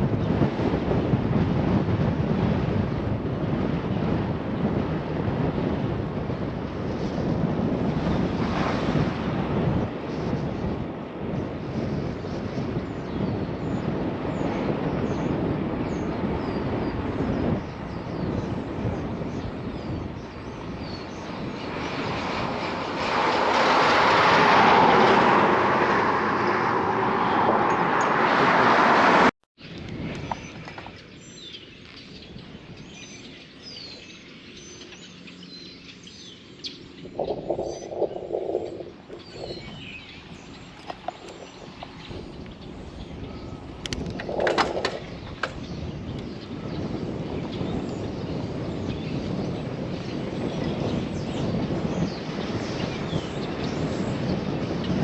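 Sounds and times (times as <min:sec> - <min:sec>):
road noise: 0:00.0 - 0:32.8, 0:33.4 - 0:55.0
rushing wind: 0:00.0 - 0:55.0
small birds chirping: 0:12.0 - 0:23.1, 0:29.7 - 0:55.0.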